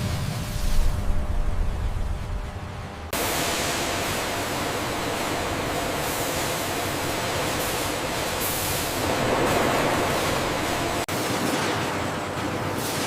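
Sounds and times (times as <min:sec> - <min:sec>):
loud steady hiss: 0:03.2 - 0:11.1.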